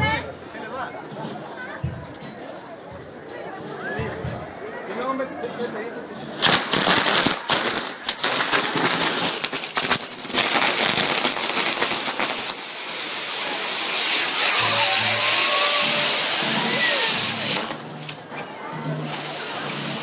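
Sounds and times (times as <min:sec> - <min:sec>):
fireworks crackling and hissing: 0:06.2 - 0:18.2, 0:19.0 - 0:20.0.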